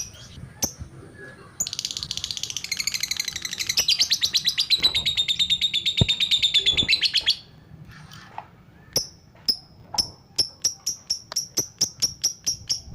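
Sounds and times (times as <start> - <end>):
lovebird chirping: 0.0 - 12.9.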